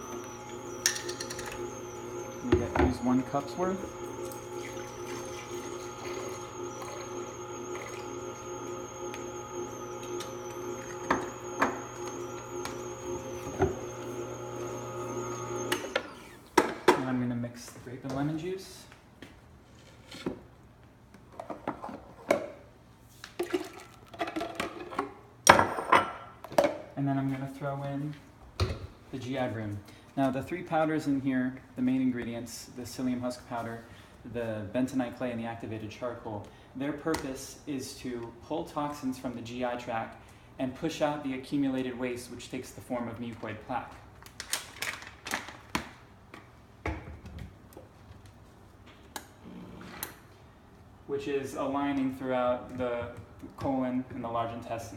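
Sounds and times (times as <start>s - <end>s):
containers clattering: 0.0s - 14.3s
containers clinking: 0.0s - 15.8s
liquid pouring and sloshing: 23.4s - 24.5s.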